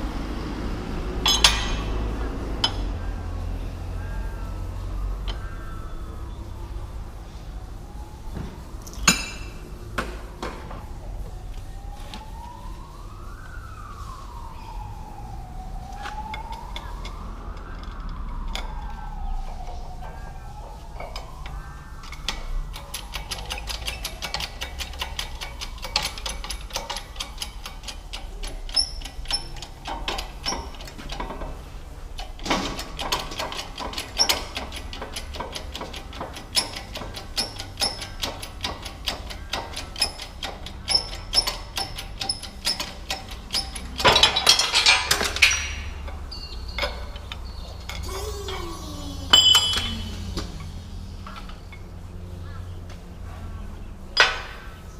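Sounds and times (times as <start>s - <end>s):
hand tools clicking on metal: 1.2s - 1.9s, 21.0s - 31.6s, 32.2s - 51.9s.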